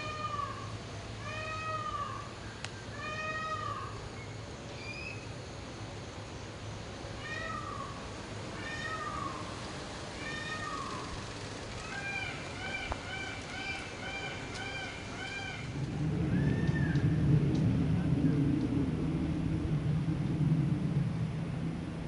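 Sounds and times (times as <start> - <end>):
peacocks calling: 0.0 - 5.4, 6.8 - 17.3.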